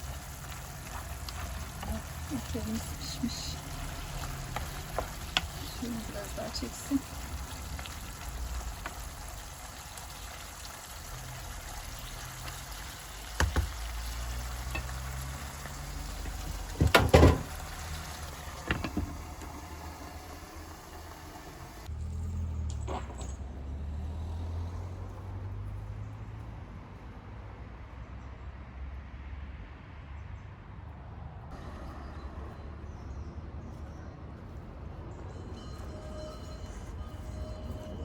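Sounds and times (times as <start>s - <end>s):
meat sizzling in a pan: 0.0s - 21.9s
utensils knocking: 16.2s - 17.7s, 18.5s - 19.7s.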